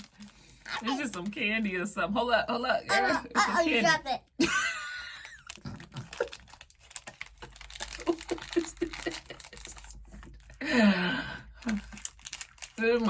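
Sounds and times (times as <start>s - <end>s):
plastic wrapper crinkling: 0.0s - 1.6s, 5.1s - 10.8s, 11.5s - 13.0s.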